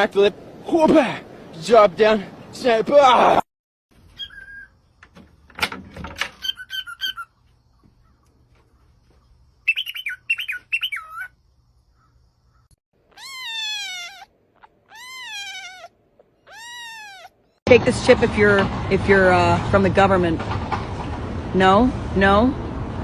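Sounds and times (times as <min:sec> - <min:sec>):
bird chirping and squawking: 0:04.0 - 0:04.8, 0:06.3 - 0:08.9, 0:09.6 - 0:17.6
cat meowing: 0:13.0 - 0:17.6.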